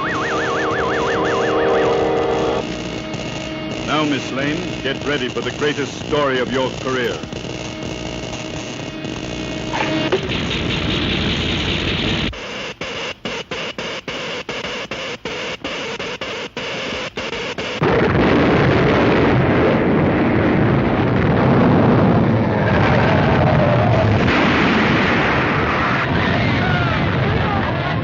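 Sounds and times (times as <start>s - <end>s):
crackling electric buzz: 0.0s - 26.1s
deep earthquake rumble: 17.8s - 28.0s.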